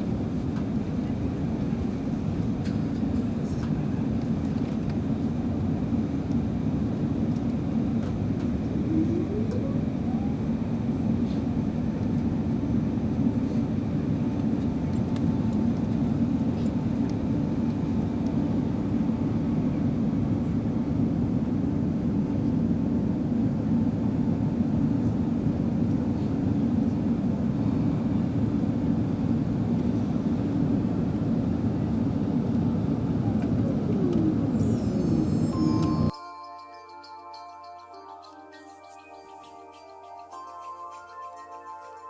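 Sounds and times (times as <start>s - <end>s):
airliner engine and airflow rumble: 0.0s - 36.2s
faint whine: 7.2s - 21.0s, 26.8s - 36.2s.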